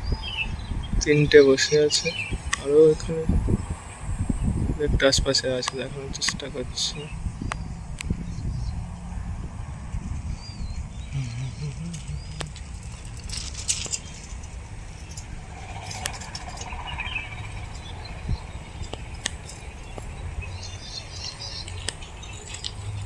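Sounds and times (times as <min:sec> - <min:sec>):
low rumble: 0:07.0 - 0:19.2
scattered clicks: 0:11.6 - 0:16.8.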